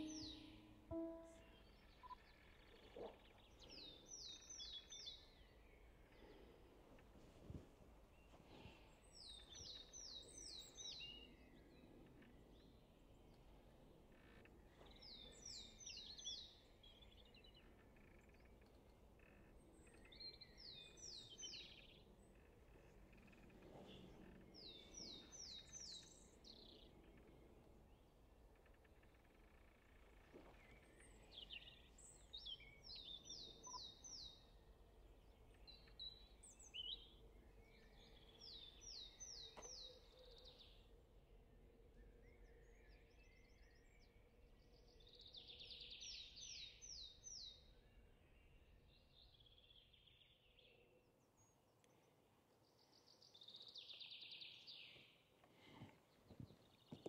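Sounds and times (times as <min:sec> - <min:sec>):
songbird singing high notes: 0:00.0 - 0:02.2.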